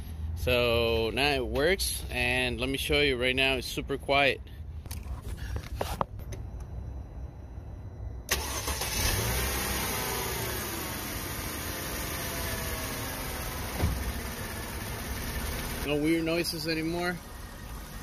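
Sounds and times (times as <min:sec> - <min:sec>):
car engine starting and idling: 0:06.2 - 0:18.0.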